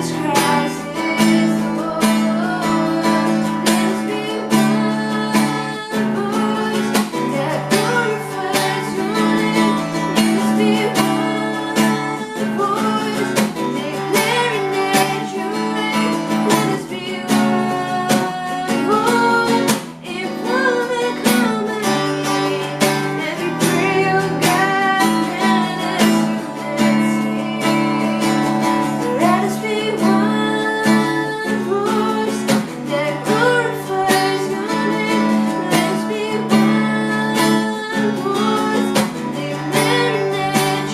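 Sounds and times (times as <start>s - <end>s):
person singing: 0.0s - 40.9s
strummed acoustic guitar: 0.0s - 40.9s.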